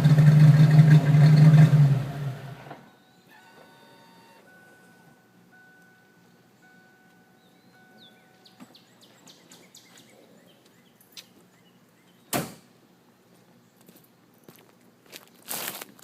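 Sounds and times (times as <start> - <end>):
car warning chime beeping: 2.8 - 8.6.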